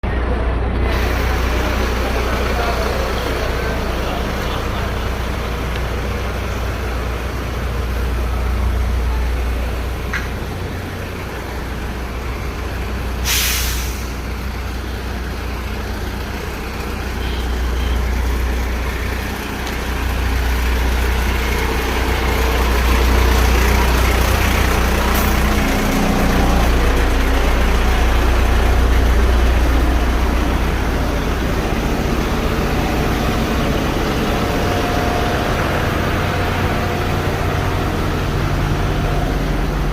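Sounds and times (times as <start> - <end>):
truck engine rumbling: 0.0 - 39.9
air brakes hissing: 13.1 - 14.4.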